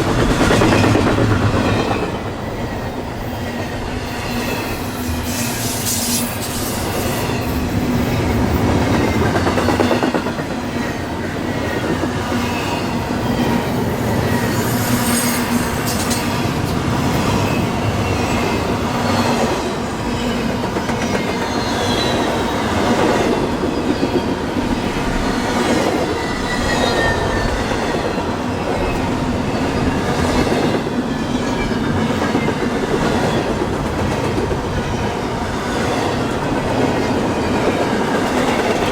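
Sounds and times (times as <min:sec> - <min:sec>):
wheel squeals: 0:26.1 - 0:27.8.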